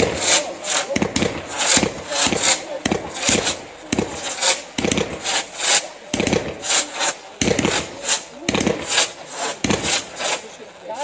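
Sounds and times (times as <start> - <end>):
fireworks launching and bursting: 0.0 - 11.0
hissing rush of climbing shells: 0.0 - 11.0.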